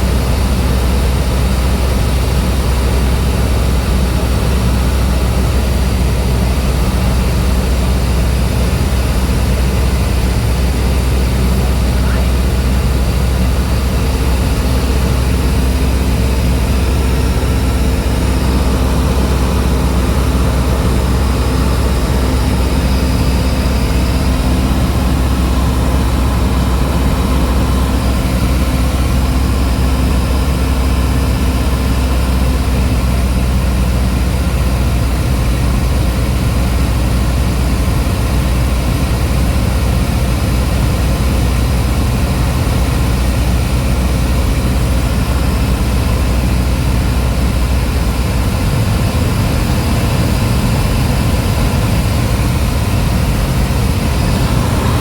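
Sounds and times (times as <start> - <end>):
propeller plane engine droning: 0.0 - 55.0
steady tone: 48.9 - 55.0.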